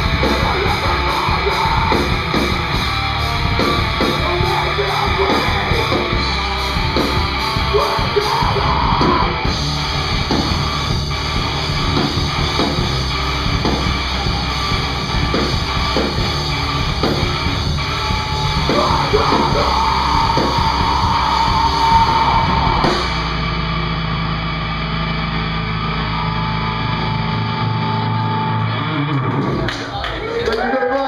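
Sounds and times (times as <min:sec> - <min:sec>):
drum kit: 0:00.0 - 0:24.5
distorted electric guitar: 0:00.0 - 0:30.3.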